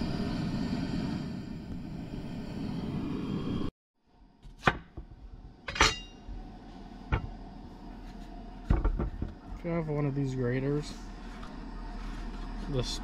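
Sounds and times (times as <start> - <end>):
metallic ring: 5.6 - 6.3.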